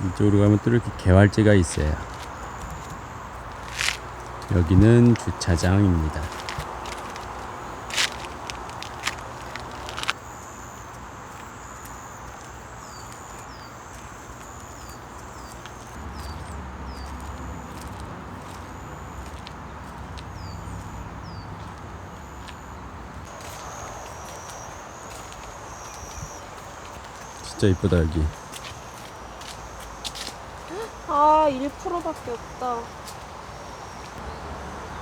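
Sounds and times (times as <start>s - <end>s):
forest background noise: 0.0s - 35.0s.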